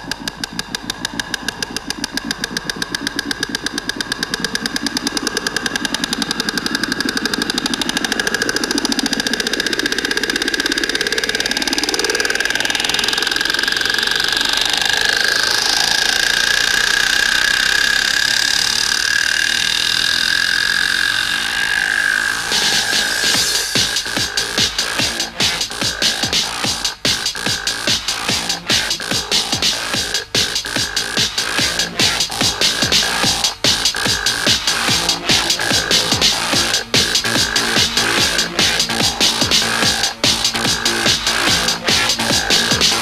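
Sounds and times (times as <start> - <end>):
pulsing synth line: 0.0 - 43.0.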